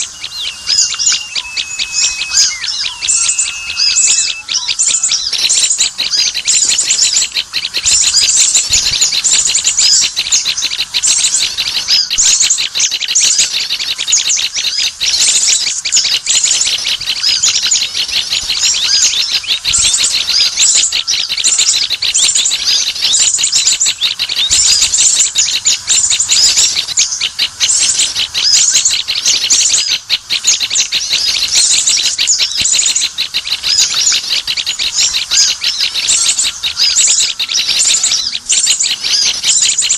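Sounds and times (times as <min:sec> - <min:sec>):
small birds chirping and twittering: 0:00.0 - 0:39.9.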